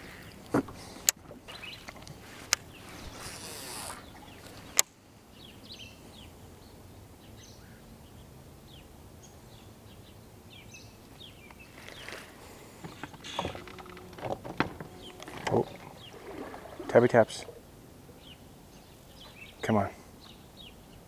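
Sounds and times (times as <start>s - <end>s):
small birds chirping: 1.5s - 21.0s.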